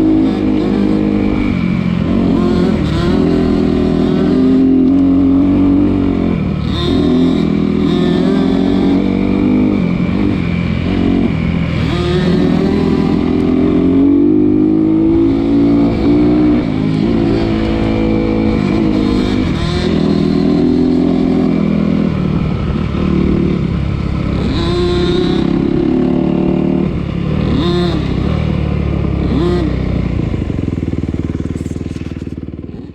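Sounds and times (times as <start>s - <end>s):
off-road engine revving: 0.0s - 32.9s.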